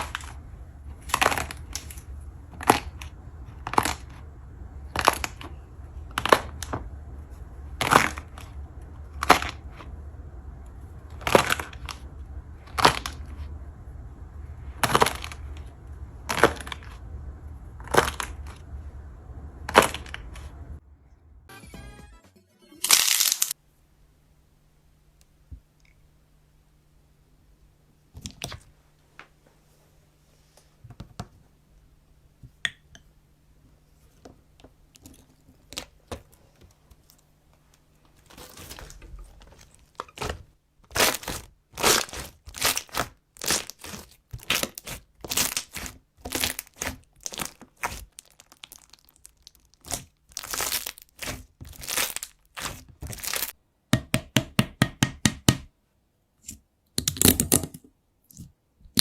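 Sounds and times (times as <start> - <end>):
slime crackling and popping: 0.0 - 20.8, 22.8 - 23.6, 38.2 - 53.6, 57.0 - 57.8.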